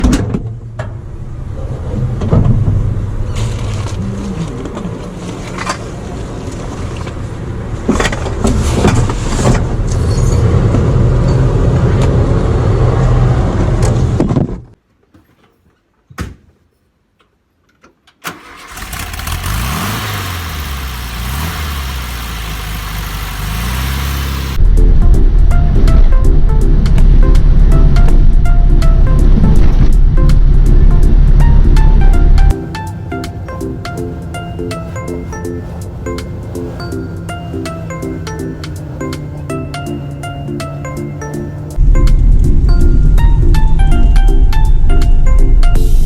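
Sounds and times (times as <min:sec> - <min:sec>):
car engine running: 0:18.7 - 0:46.0.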